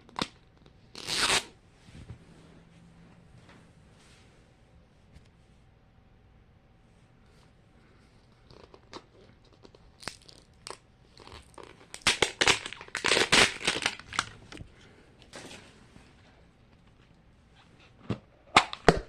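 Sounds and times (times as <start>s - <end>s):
plastic wrapping tearing and crinkling: 10.0s - 14.6s.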